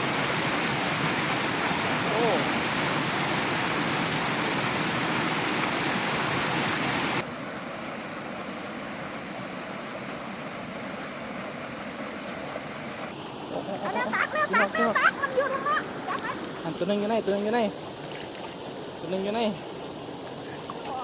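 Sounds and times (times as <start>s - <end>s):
water rushing out of a pipe: 0.0s - 7.3s.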